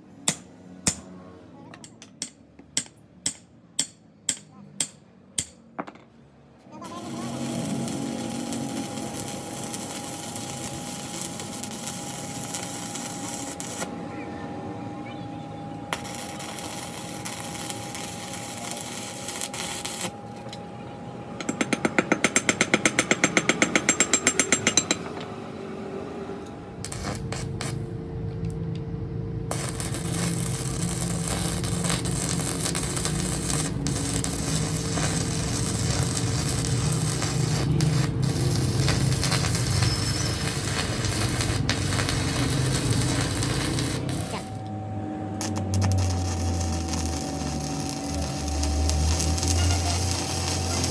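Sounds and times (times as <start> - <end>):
power tool whining: 29.5 - 44.8, 45.4 - 50.9
power tool lower whine: 29.5 - 50.9.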